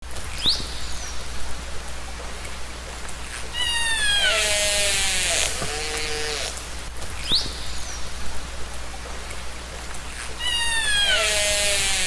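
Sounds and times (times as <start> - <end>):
steady hiss: 0.0 - 12.0
orca calls: 3.5 - 6.6, 10.4 - 12.0.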